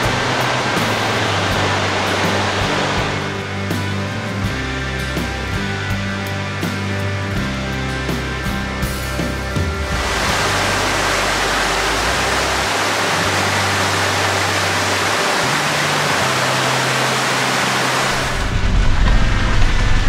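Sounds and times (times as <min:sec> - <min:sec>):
rushing water hiss: 0:00.0 - 0:03.9, 0:09.8 - 0:20.0
low rumble: 0:00.0 - 0:06.1, 0:08.5 - 0:20.0
soft background music: 0:00.0 - 0:20.0.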